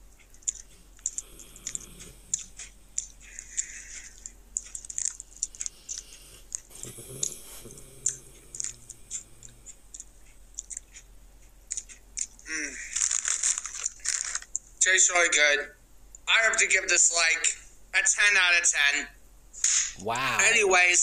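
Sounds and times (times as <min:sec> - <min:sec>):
crunchy chips being chewed: 0:00.2 - 0:11.0, 0:11.7 - 0:14.6.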